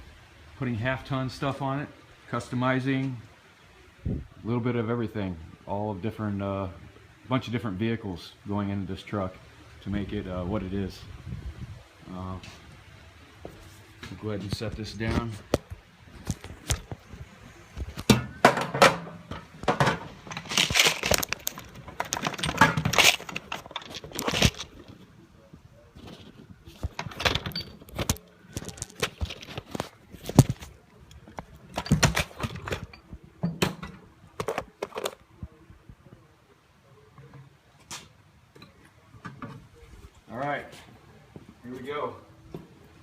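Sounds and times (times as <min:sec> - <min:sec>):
metallic clicks and rattles: 0:18.0 - 0:24.8.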